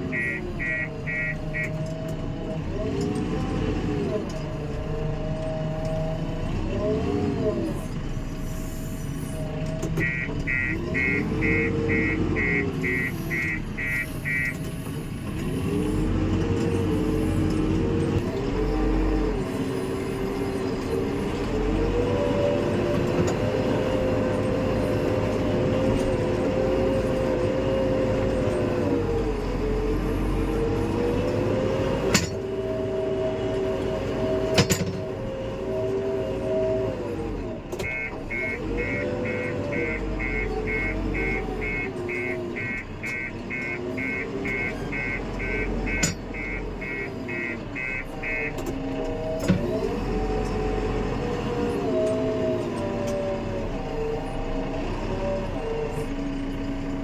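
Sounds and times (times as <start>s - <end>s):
diesel engine running under load: 0.0s - 57.0s
reversing alarm beeping: 0.1s - 1.9s, 10.0s - 14.6s, 37.8s - 48.6s.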